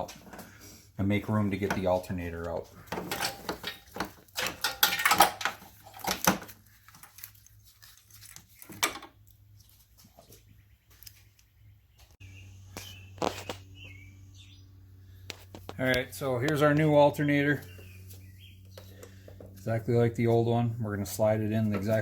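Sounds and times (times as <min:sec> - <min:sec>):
tools and metal parts clinking: 0:02.7 - 0:09.2
bird chirping: 0:10.2 - 0:15.2, 0:16.9 - 0:19.4
steady low hum: 0:11.5 - 0:22.0.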